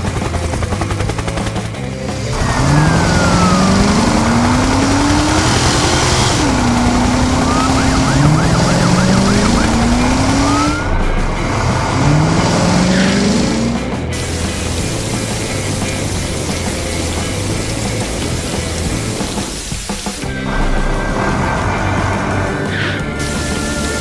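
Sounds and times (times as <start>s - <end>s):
vehicle engine revving: 0.0s - 24.0s
fast-warbling siren: 2.3s - 13.7s.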